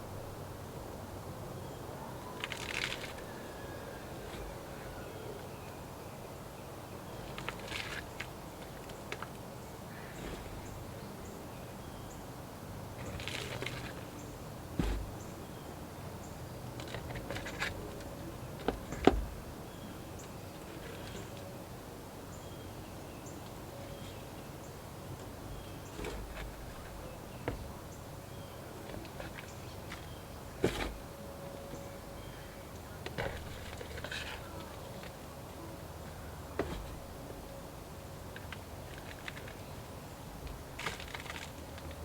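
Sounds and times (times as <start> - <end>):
rustle of soil: 12.9 - 15.3.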